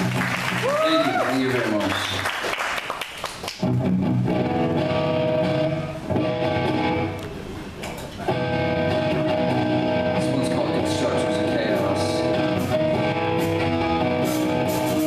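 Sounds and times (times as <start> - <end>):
electric guitar strumming chords: 3.6 - 7.5, 8.2 - 15.0.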